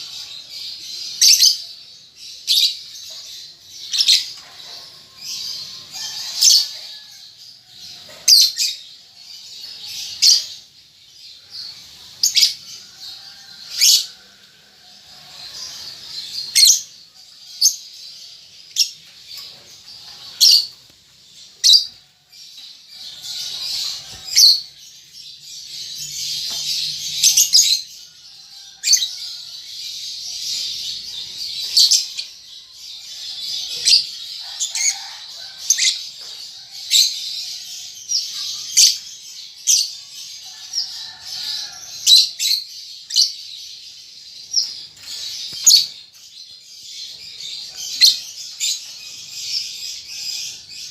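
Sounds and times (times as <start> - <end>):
lovebirds chirping: 0.0 - 50.9.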